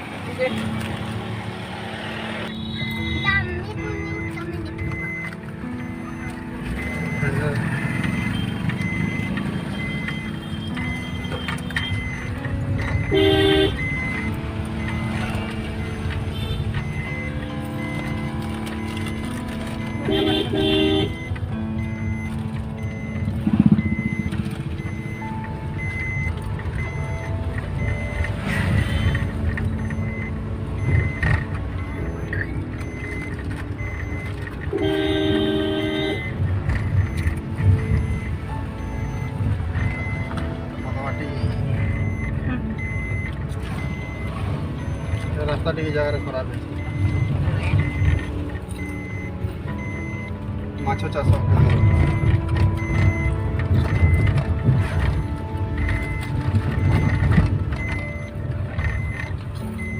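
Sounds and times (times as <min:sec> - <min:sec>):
vehicle engine and road rumble: 0:00.0 - 0:59.9
vehicle horn blast: 0:02.5 - 0:03.2, 0:13.1 - 0:13.8, 0:20.0 - 0:21.2, 0:34.7 - 0:36.3
short high beeps: 0:02.5 - 0:59.9.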